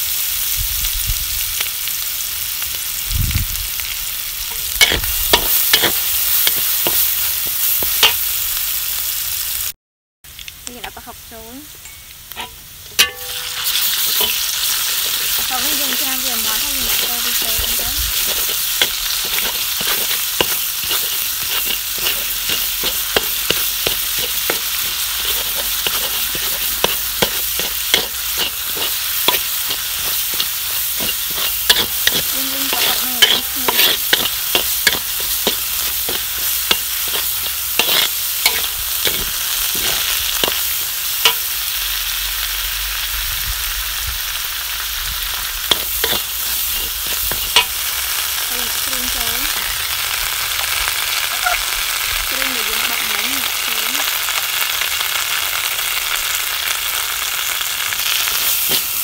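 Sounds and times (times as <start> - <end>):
shallots and garlic sizzling in oil: 0.0 - 59.0
metal spatula scraping a wok: 4.5 - 8.4, 12.3 - 41.9, 45.4 - 49.8, 51.2 - 51.7, 58.2 - 59.0.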